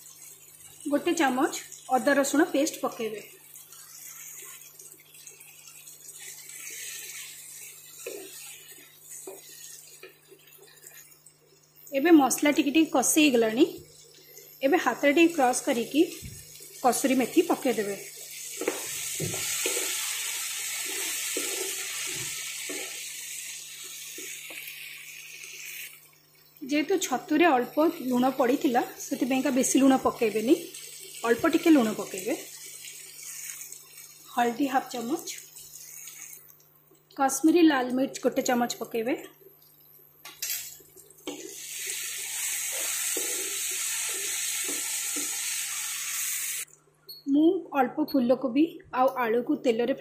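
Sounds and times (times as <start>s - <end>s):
vegetables sizzling in oil: 0.0s - 39.2s, 40.1s - 46.7s
wooden spatula stirring: 6.2s - 11.1s, 18.6s - 23.1s, 42.7s - 45.4s.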